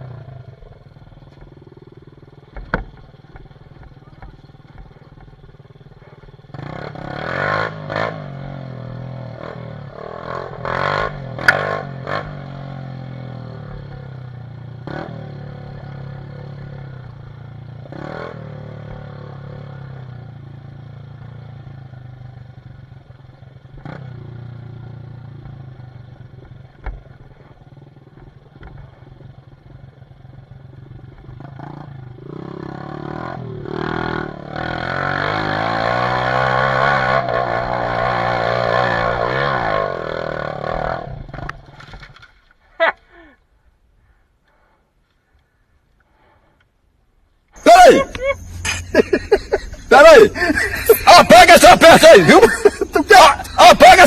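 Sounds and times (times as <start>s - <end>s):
dirt bike engine revving: 0.0s - 20.4s, 31.4s - 41.7s, 47.6s - 54.0s
sharp knocks and clatter: 2.5s - 5.3s.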